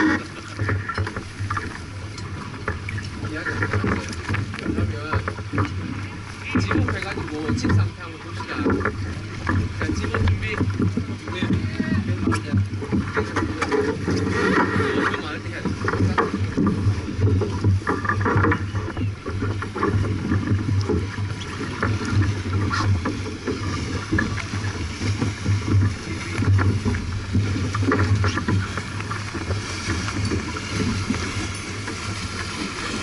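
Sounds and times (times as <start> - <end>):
water noise: 0.0 - 33.0
wind: 0.0 - 33.0
wind buffeting microphone: 0.0 - 33.0.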